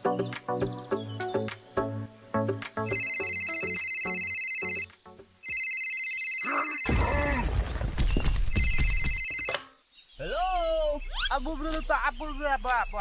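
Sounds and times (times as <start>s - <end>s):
plucked background music: 0.0s - 5.4s
telephone ringing: 2.9s - 7.0s, 8.5s - 9.6s.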